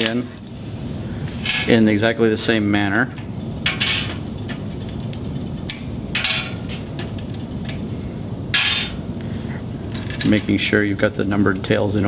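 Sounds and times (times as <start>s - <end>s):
cable rustling: 1.3s - 11.6s.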